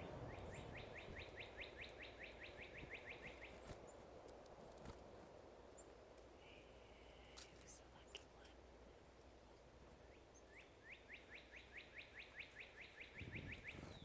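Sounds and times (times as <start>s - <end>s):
faint bird call: 10.1s - 14.0s
bird trilling: 10.6s - 14.0s.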